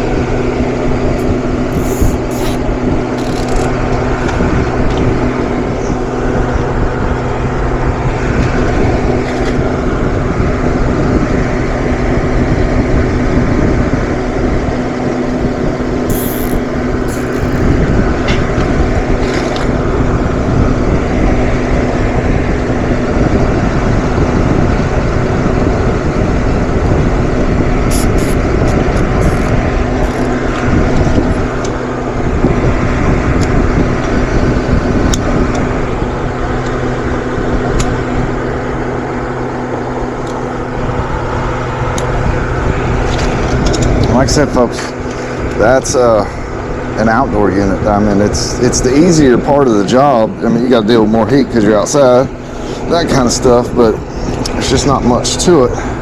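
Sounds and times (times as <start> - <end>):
short high ticks: 1.2 - 2.6, 3.2 - 3.7, 16.1 - 17.7
machine humming: 1.2 - 3.8, 16.1 - 17.8.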